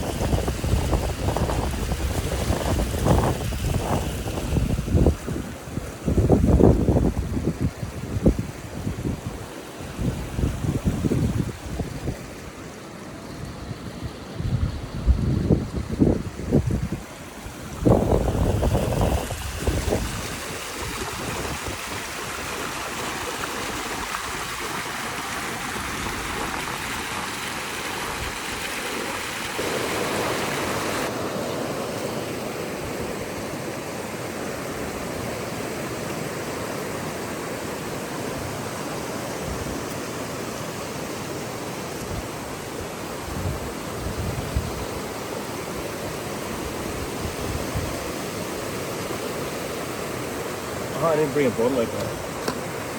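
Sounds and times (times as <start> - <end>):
creek water flowing: 0.0 - 52.9.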